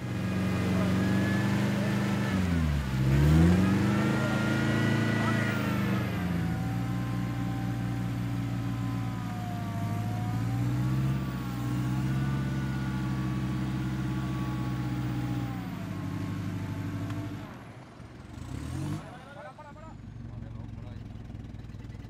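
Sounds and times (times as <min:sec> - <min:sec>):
off-road vehicle engine under load: 0:00.0 - 0:22.0.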